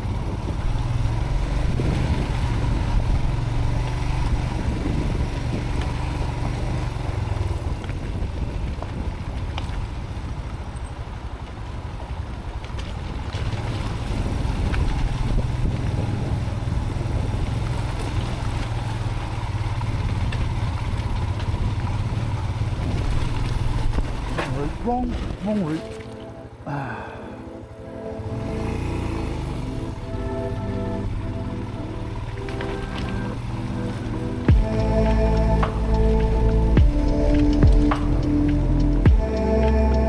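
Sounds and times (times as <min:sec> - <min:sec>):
motorcycle engine running: 0:00.0 - 0:12.1, 0:13.4 - 0:25.9, 0:28.3 - 0:40.0
wind noise on helmet: 0:00.0 - 0:24.4.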